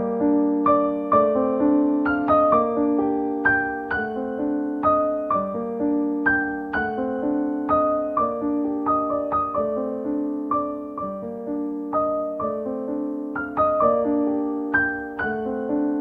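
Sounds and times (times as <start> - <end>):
gentle solo piano melody: 0.0 - 16.0.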